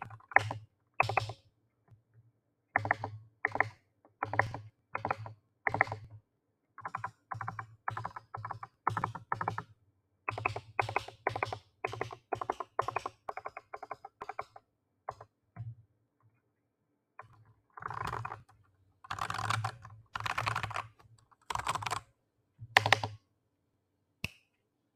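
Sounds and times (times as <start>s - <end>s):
keyboard typing: 17.2s - 22.0s, 22.8s - 23.2s.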